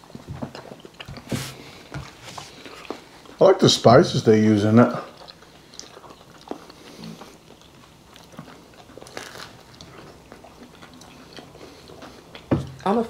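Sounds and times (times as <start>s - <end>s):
quiet chewing and biting: 0.0s - 13.0s.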